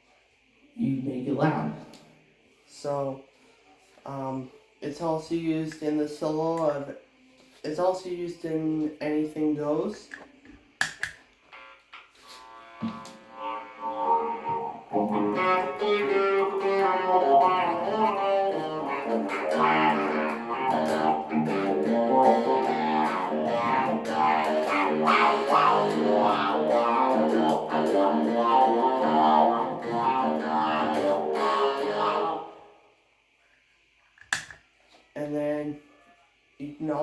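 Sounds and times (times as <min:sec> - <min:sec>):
talk box electric guitar riff: 0:11.5 - 0:32.7.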